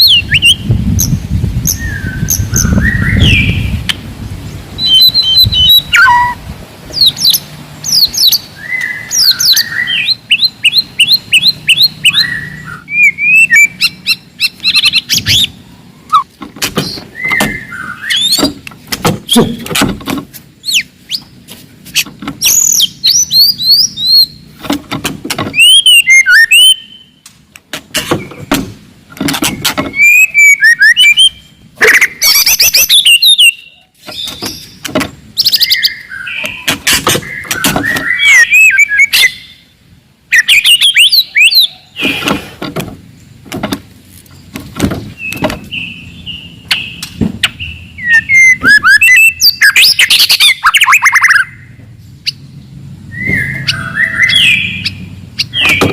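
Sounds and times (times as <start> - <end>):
bird singing whistled phrases: 0.0 - 0.6, 1.7 - 3.8, 4.8 - 6.4, 7.0 - 16.3, 16.9 - 18.5, 25.5 - 27.2, 29.9 - 34.7, 35.4 - 39.6, 40.3 - 41.8, 47.6 - 51.7, 53.1 - 55.9.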